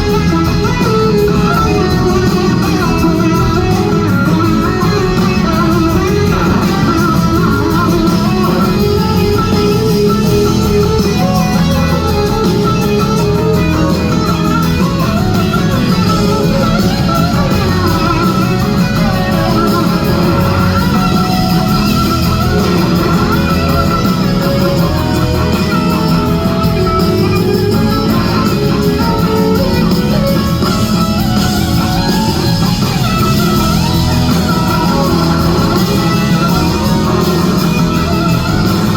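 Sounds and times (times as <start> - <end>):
bass guitar: 0.0 - 38.9
drums: 0.0 - 38.9
electric guitar bending lines: 0.0 - 38.9.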